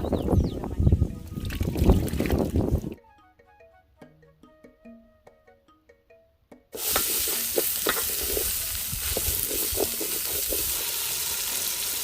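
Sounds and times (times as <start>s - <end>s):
wind buffeting microphone: 0.0s - 3.0s.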